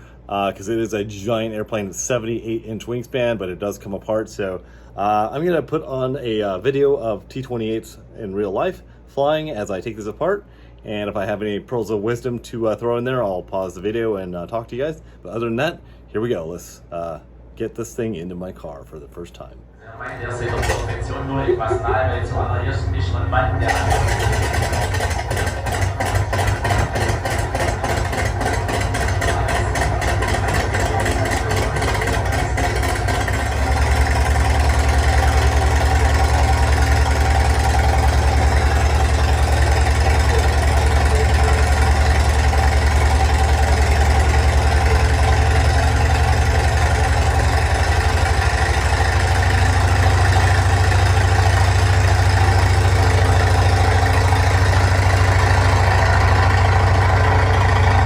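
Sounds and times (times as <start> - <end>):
aircraft piston engine running: 20.2 - 58.0.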